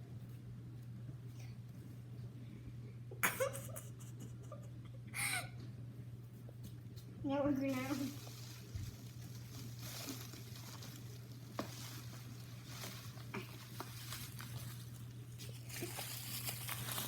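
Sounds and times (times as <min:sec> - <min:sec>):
low steady hum: 0:00.0 - 0:17.0
bubble wrap crinkling: 0:07.7 - 0:17.0.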